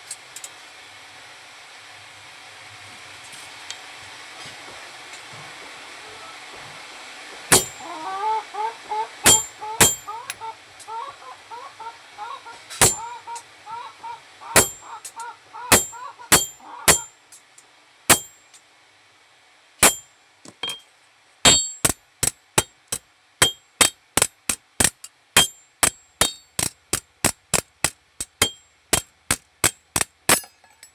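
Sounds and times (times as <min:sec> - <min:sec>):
hammer clanging on metal: 0:07.5 - 0:07.8, 0:09.2 - 0:10.4, 0:12.8 - 0:13.1, 0:14.6 - 0:17.1, 0:18.1 - 0:18.4, 0:19.8 - 0:20.9, 0:21.5 - 0:30.9.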